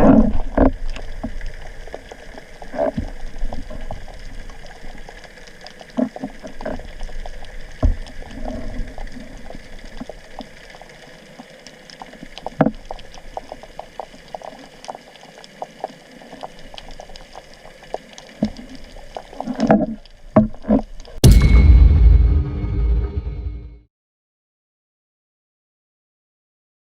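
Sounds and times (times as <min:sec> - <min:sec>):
underwater low hum: 0:00.0 - 0:21.2.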